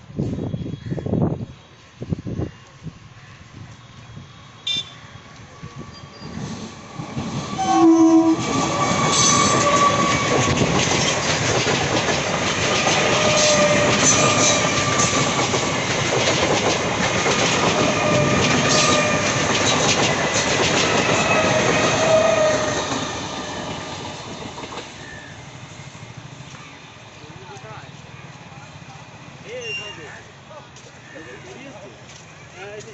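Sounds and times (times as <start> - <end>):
train wheels clattering over rails: 6.2 - 25.2
train horn blast: 7.6 - 10.1.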